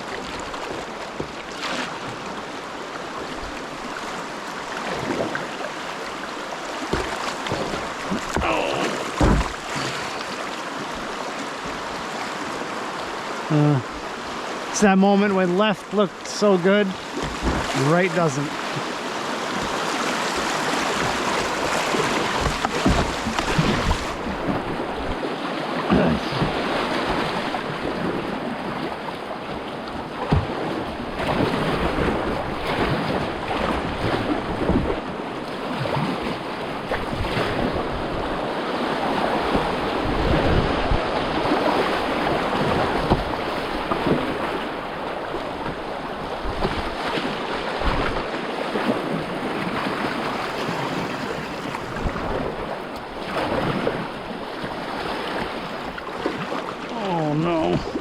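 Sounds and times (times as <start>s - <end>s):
whitewater rushing: 0.0s - 28.2s, 36.9s - 58.0s
short water splashes: 3.4s - 12.6s, 15.9s - 28.9s, 30.2s - 58.0s
wind buffeting microphone: 49.0s - 55.0s.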